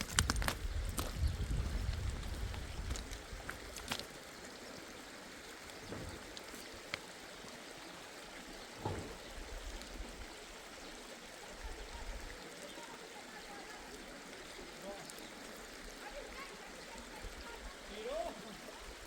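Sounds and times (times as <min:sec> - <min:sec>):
mountain stream flowing: 0:00.0 - 0:19.0
soft thump: 0:05.8 - 0:06.2, 0:08.8 - 0:09.2.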